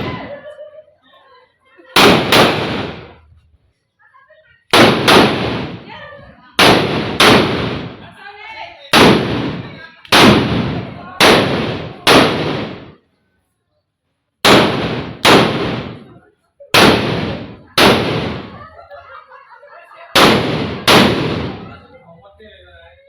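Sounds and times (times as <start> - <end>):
firecrackers banging: 0.0 - 0.5, 2.0 - 3.4, 4.7 - 8.2, 8.9 - 13.0, 14.4 - 22.0
faint voices: 0.0 - 2.3, 7.9 - 13.9.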